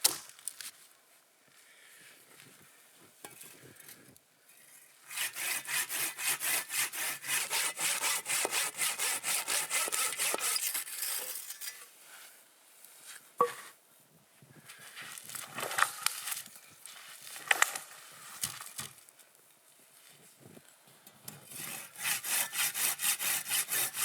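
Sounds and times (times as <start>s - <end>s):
hand saw cutting wood: 5.1s - 11.6s, 21.4s - 24.0s.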